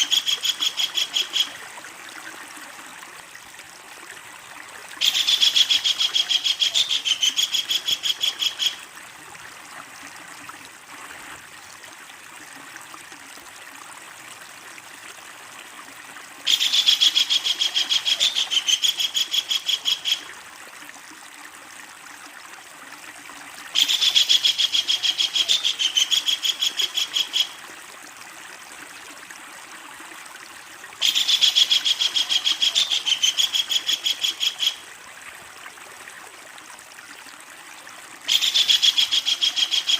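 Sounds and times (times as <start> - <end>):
kingfisher rattling call: 0.0 - 1.6, 5.0 - 8.8, 16.5 - 20.2, 31.0 - 34.8, 38.3 - 39.9
stream rushing: 0.0 - 21.1.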